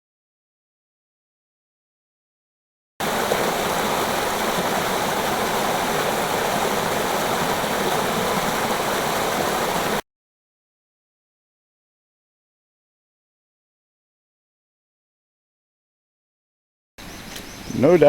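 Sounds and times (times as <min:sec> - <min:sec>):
running water rushing: 0:03.0 - 0:10.0.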